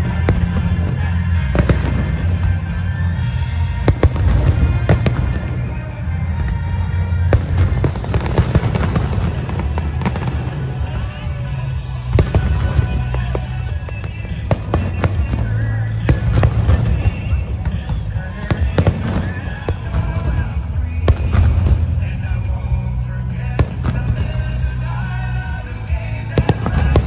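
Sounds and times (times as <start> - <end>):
fireworks bangs: 0.0 - 27.0
fireworks crackling: 0.0 - 27.0
music with heavy bass: 0.0 - 27.0.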